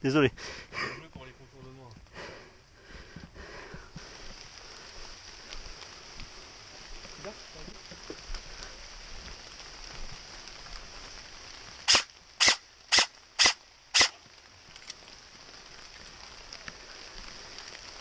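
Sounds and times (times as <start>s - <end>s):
airsoft gun shots: 11.9s - 14.2s.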